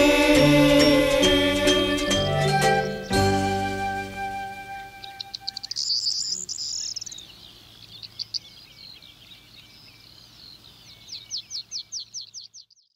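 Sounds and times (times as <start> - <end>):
backing music: 0.0 - 5.6
songbird trilling and chirping: 2.1 - 12.9.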